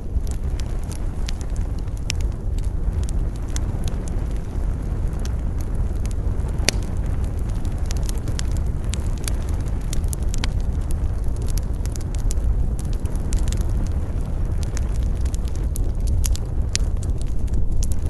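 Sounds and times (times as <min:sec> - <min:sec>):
low wind rumble: 0:00.0 - 0:18.0
wood fire crackling: 0:00.0 - 0:18.0.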